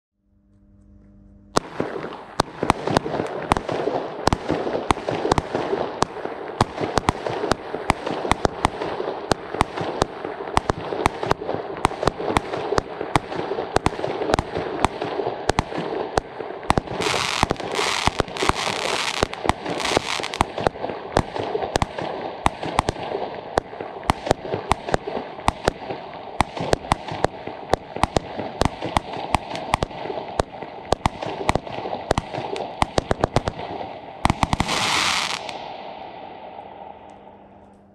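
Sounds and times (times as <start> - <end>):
fireworks launch bangs: 1.5 - 37.3
fireworks hissing: 16.7 - 20.6, 34.2 - 35.7.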